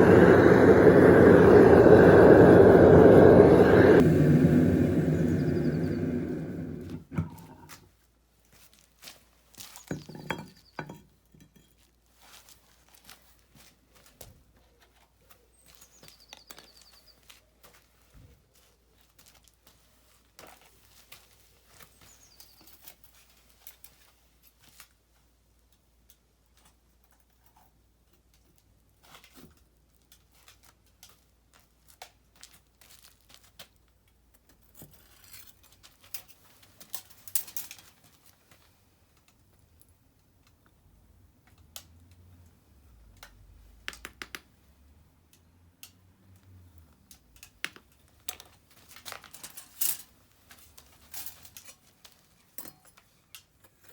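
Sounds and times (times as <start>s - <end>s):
faint high chirps: 4.7s - 6.9s.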